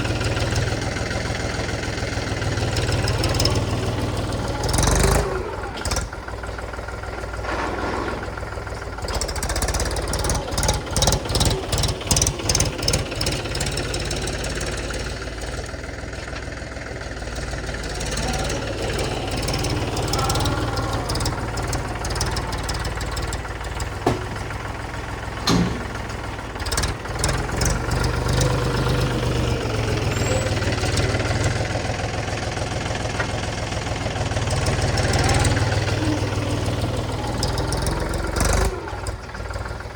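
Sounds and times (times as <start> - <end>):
heavy diesel engine running: 0.0 - 39.9
sharp knocks: 25.4 - 26.1.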